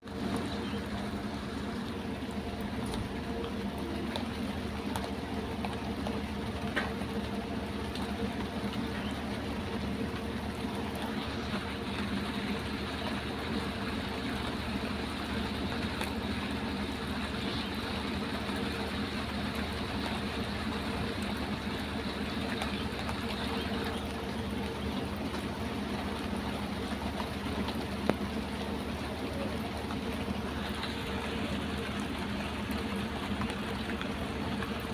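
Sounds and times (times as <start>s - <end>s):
low steady hum: 0.0s - 34.9s
steady rain falling: 0.0s - 34.9s.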